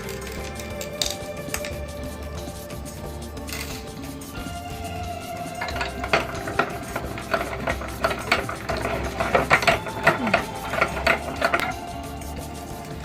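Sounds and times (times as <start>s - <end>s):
meat grinder clicking and rattling: 5.4s - 13.0s.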